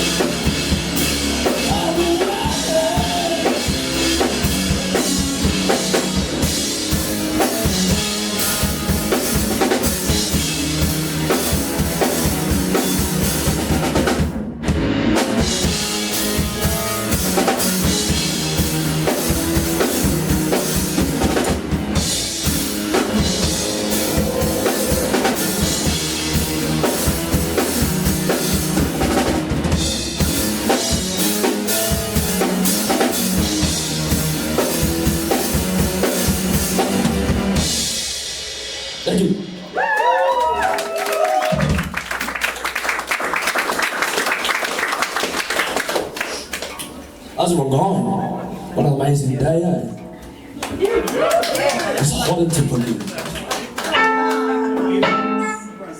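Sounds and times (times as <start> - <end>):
drum kit steady beat: 0.0 - 39.9
live band playing: 0.0 - 40.6, 52.0 - 55.9.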